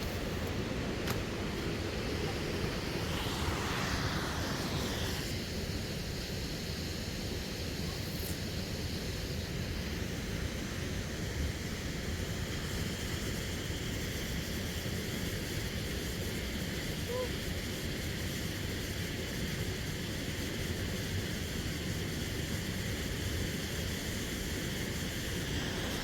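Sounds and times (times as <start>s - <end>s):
wind rumbling on microphone: 0.0s - 5.4s
rushing hiss: 0.0s - 26.0s.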